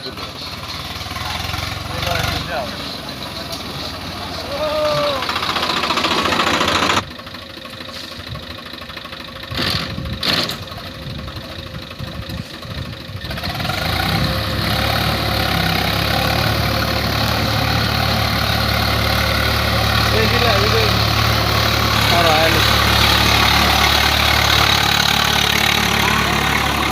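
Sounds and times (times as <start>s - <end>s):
tractor diesel engine running: 0.0s - 26.9s.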